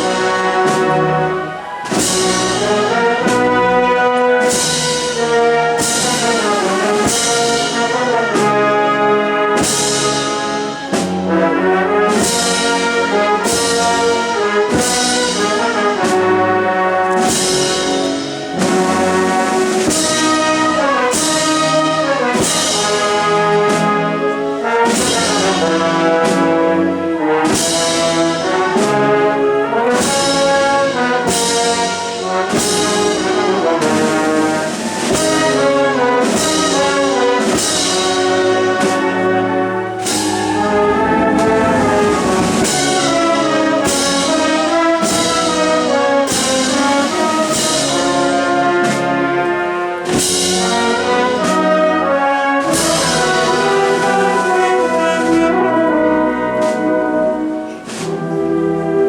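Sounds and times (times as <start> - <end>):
percussion strikes: 0.0 - 58.9
wind band playing a march: 0.0 - 59.0.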